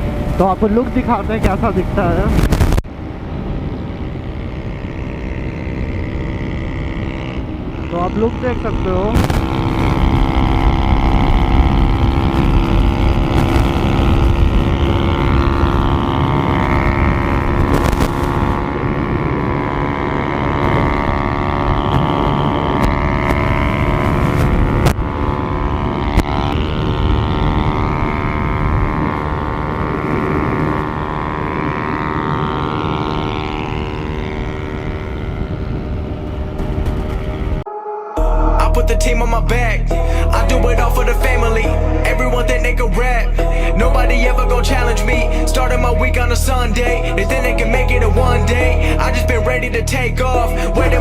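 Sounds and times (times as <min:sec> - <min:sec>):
motorcycle engines cruising: 0:00.0 - 0:51.0
wind rumble on microphone: 0:00.0 - 0:51.0.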